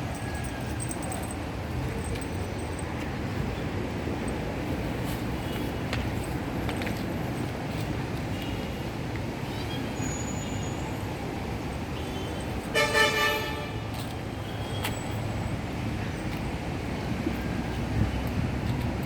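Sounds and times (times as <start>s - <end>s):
low traffic rumble: 0.0s - 19.0s
vehicle horn toot: 12.0s - 13.9s.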